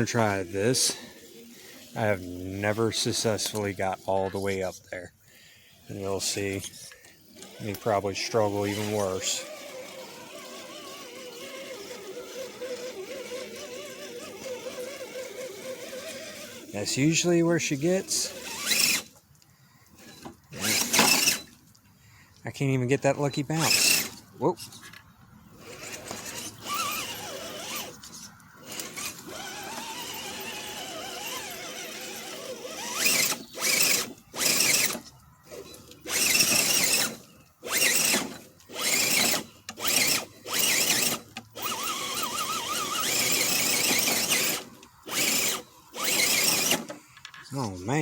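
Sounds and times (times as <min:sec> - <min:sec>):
rc car motor whining: 0:00.0 - 0:21.6, 0:23.4 - 0:48.0.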